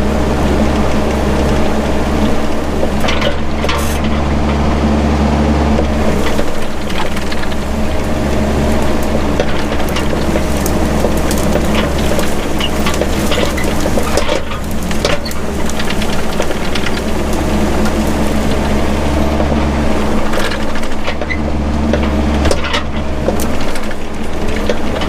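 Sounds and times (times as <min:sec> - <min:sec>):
excavator engine running: 0:00.0 - 0:25.0
brush and wood snapping: 0:05.8 - 0:25.0.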